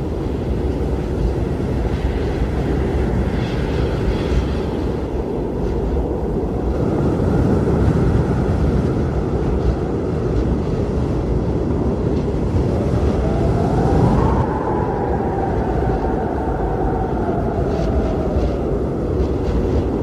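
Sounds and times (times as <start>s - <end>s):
strong blizzard wind: 0.0s - 20.0s.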